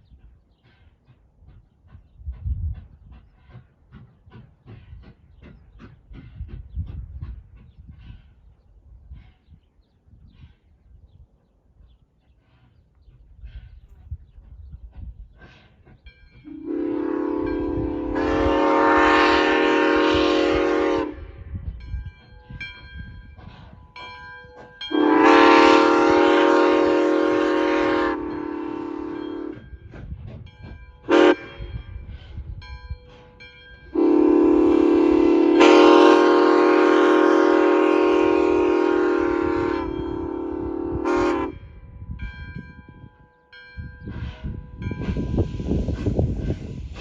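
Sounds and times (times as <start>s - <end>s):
steam locomotive whistle blasts: 16.4s - 21.7s, 24.8s - 29.8s, 31.0s - 32.0s, 33.1s - 41.9s.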